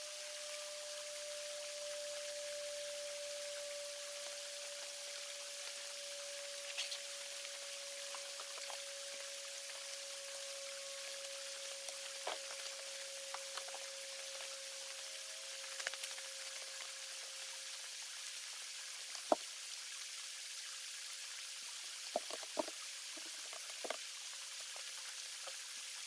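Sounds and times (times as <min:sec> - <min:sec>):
creek running: 0:00.0 - 0:26.0
faint steady tone: 0:00.0 - 0:26.0
small clicks and knocks: 0:22.1 - 0:24.0.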